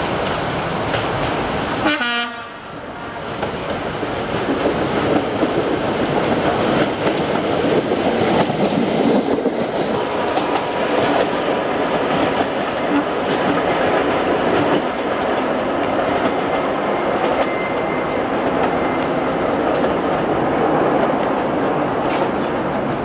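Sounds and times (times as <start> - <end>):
train running noise: 0.0 - 23.0
train horn: 1.8 - 3.2.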